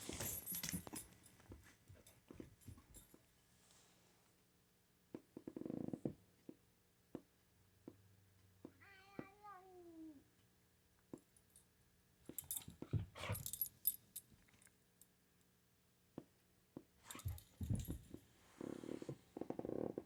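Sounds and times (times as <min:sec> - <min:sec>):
animals scuffling: 0:00.0 - 0:02.6
collar tags jingling: 0:00.0 - 0:03.2, 0:12.3 - 0:14.7, 0:17.1 - 0:18.2.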